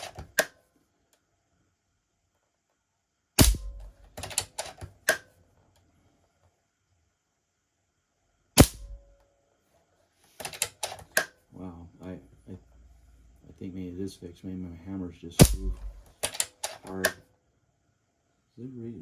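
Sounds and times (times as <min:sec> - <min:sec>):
air rifle shots: 0:03.4 - 0:05.2, 0:08.6 - 0:09.1, 0:15.4 - 0:16.4
rifle action clicks: 0:03.4 - 0:05.3, 0:08.6 - 0:09.0, 0:10.4 - 0:11.3, 0:15.4 - 0:17.2.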